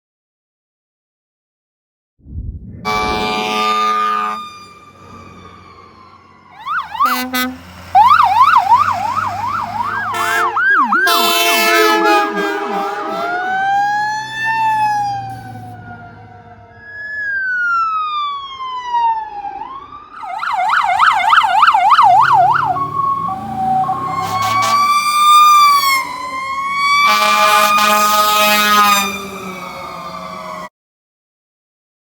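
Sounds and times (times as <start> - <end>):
harsh steady blaring tone: 2.3 - 4.9
emergency vehicle sirens wailing: 2.8 - 30.7.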